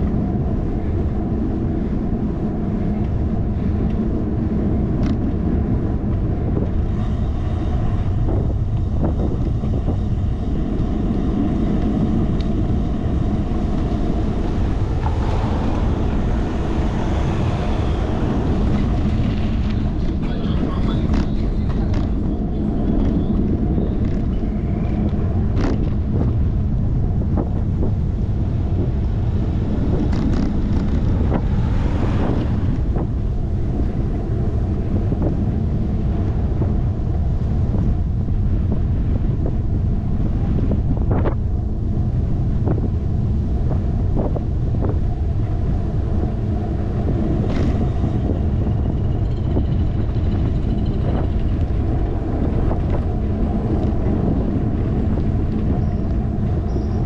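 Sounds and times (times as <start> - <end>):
wind buffeting camera: 0.0 - 57.0
bicycle clicks: 20.9 - 22.2, 22.8 - 26.2, 30.0 - 31.8.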